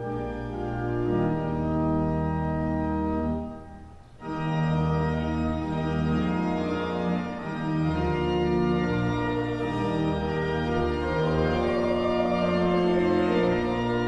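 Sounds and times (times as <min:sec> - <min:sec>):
church organ chords: 0:00.0 - 0:14.0.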